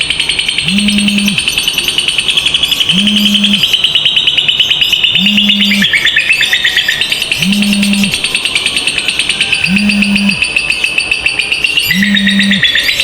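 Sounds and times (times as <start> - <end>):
lovebirds chattering: 0.0 - 13.0
low hum: 0.6 - 1.4, 2.9 - 3.6, 7.4 - 8.2.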